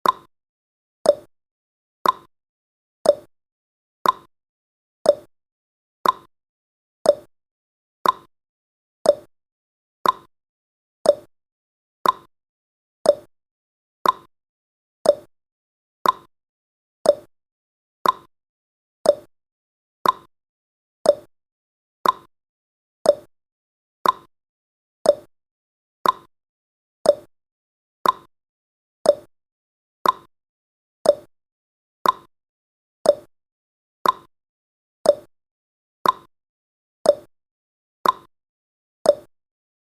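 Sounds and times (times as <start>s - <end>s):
timer ticking: 0.0s - 0.3s, 1.1s - 1.3s, 2.0s - 2.3s, 3.0s - 3.3s, 4.0s - 4.3s, 5.1s - 5.3s, 6.0s - 6.3s, 7.0s - 7.3s, 8.0s - 8.3s, 9.0s - 9.3s, 10.0s - 10.3s, 11.0s - 11.3s, 12.0s - 12.3s, 13.0s - 13.3s, 14.0s - 14.3s, 15.0s - 15.3s, 16.0s - 16.3s, 17.0s - 17.3s, 18.0s - 18.3s, 19.0s - 19.3s, 20.0s - 20.3s, 21.0s - 21.3s, 22.0s - 22.3s, 23.0s - 23.3s, 24.0s - 24.3s, 25.0s - 25.3s, 26.0s - 26.3s, 27.0s - 27.3s, 28.0s - 28.3s, 29.0s - 29.3s, 30.0s - 30.3s, 31.0s - 31.3s, 32.0s - 32.3s, 33.0s - 33.3s, 34.0s - 34.3s, 35.0s - 35.3s, 36.0s - 36.3s, 37.1s - 37.3s, 38.0s - 38.3s, 39.1s - 39.3s.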